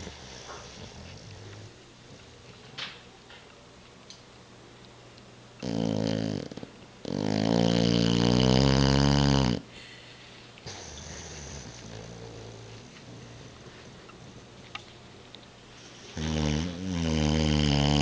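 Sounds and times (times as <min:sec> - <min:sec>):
dog snoring: 0:00.0 - 0:01.8, 0:05.6 - 0:09.7, 0:10.7 - 0:14.7, 0:15.9 - 0:18.0.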